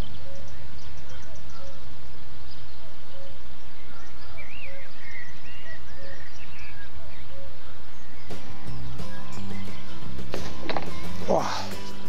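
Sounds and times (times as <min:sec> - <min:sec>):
birds singing: 0:00.0 - 0:12.0
loud music: 0:08.3 - 0:12.0.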